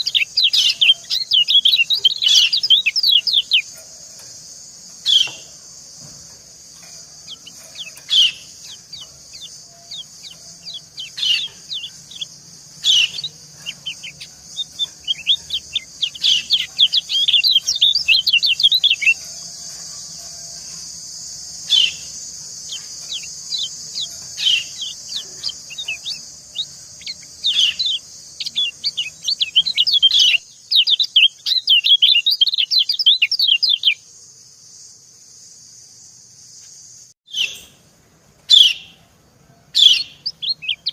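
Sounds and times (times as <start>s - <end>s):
steady high hiss: 0.0s - 31.1s
fast twittering birdsong: 0.0s - 34.1s, 37.3s - 37.8s, 38.5s - 39.0s, 39.8s - 40.9s
sharp bird chirps: 0.0s - 34.1s, 37.3s - 37.9s, 39.8s - 40.9s.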